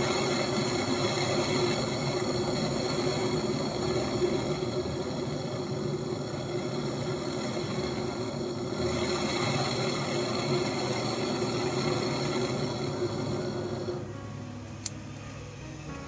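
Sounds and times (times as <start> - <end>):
small machine humming and whining: 0.0 - 16.0.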